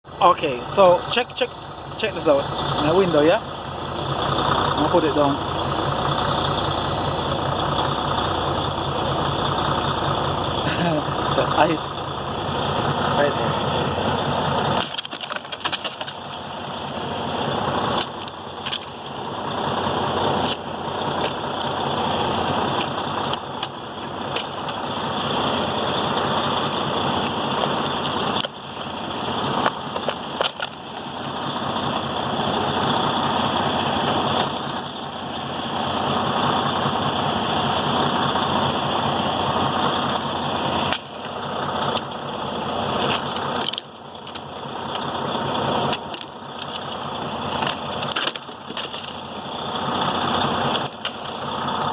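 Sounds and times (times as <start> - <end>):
diesel truck engine idling: 0.0 - 51.9
sharp clicks and knocks: 14.6 - 16.6, 17.9 - 19.2, 20.3 - 24.9, 27.1 - 32.1, 34.0 - 35.5, 43.0 - 45.2, 45.8 - 49.3, 50.0 - 51.9.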